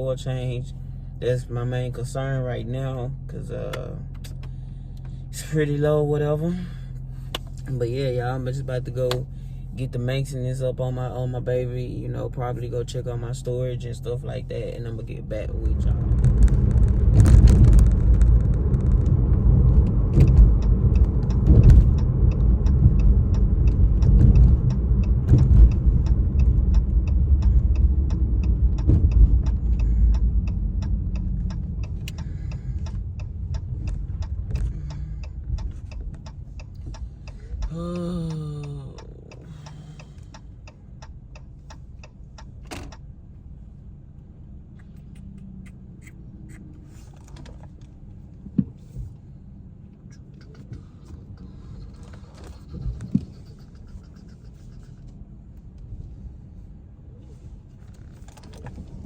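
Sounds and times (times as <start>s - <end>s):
car cabin rumble: 0.0s - 44.0s, 44.6s - 59.0s
regular ticking: 14.0s - 46.8s.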